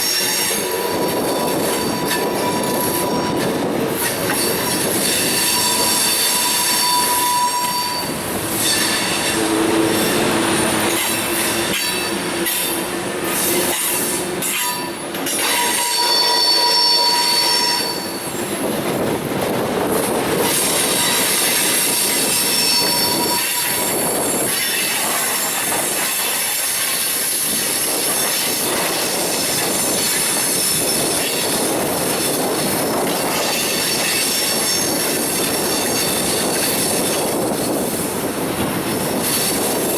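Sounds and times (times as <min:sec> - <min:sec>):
steel wheels squealing on rails: 0:00.0 - 0:39.9
train rumble: 0:00.0 - 0:39.9.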